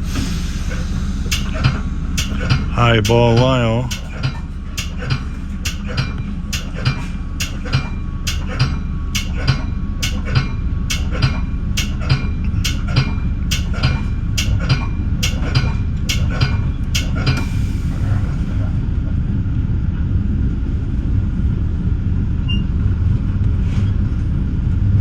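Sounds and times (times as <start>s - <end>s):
train rumbling on rails: 0.0s - 25.0s
train wheel clicks: 0.1s - 18.6s.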